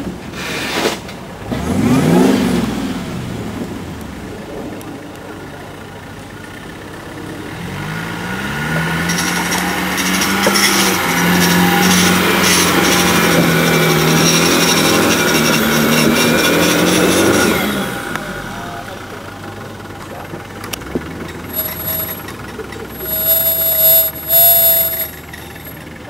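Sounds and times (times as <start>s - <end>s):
engine revving: 1.5s - 3.8s, 7.3s - 19.8s, 20.8s - 25.8s
loud rattling scraping: 8.7s - 19.9s, 21.1s - 26.0s.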